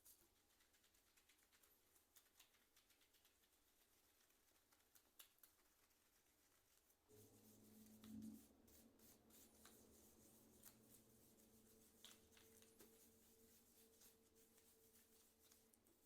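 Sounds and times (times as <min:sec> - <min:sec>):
low steady hum: 0:07.1 - 0:16.0.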